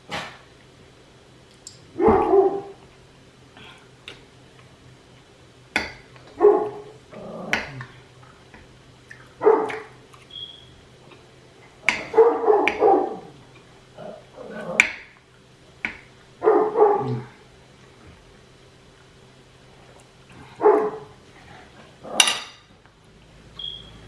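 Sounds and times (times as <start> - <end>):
dog barking: 1.9 - 2.8, 6.3 - 7.8, 9.4 - 10.0, 11.8 - 13.4, 16.4 - 17.4, 20.4 - 21.2.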